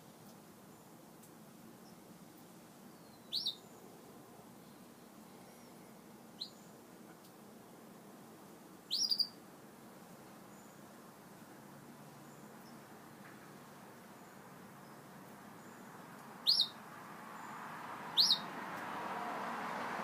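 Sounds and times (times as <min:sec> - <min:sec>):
faint background hiss: 0:00.0 - 0:20.0
canaries chirping: 0:03.0 - 0:03.6, 0:08.9 - 0:09.4, 0:16.4 - 0:16.8, 0:17.4 - 0:18.5.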